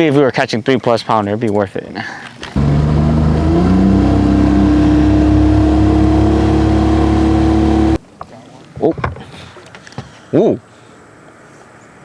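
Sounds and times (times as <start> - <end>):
motor engine revving: 2.6 - 8.0.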